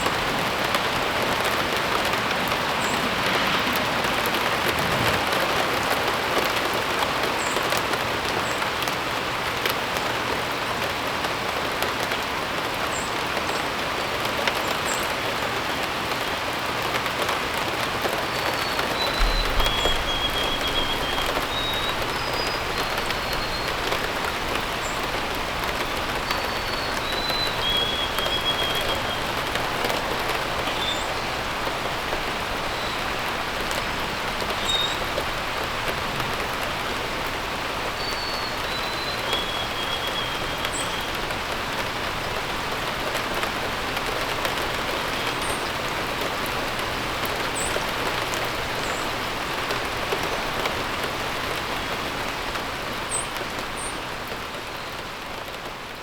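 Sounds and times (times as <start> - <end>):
steady rain: 0.0 - 56.0
small birds chirping: 18.4 - 31.7, 37.9 - 41.4.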